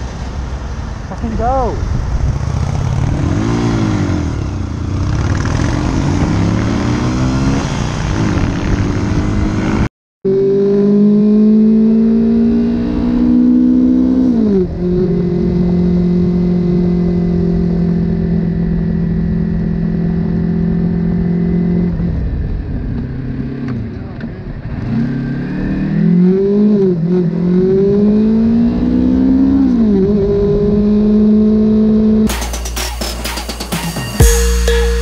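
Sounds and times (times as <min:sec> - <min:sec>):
road and wind noise: 0:00.0 - 0:32.4
motorcycle engine: 0:02.0 - 0:26.0.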